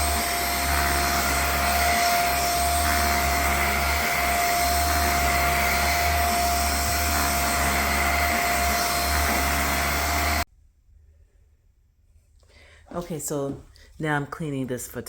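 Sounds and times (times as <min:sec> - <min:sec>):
handheld vacuum whining: 0:00.0 - 0:10.5.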